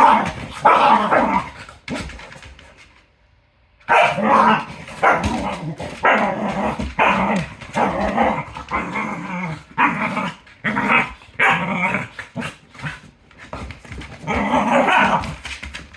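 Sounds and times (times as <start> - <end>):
dog growly barks: 0.0 - 2.1, 3.9 - 13.1, 14.2 - 15.4
dog play-growling: 0.0 - 2.8, 3.9 - 15.9.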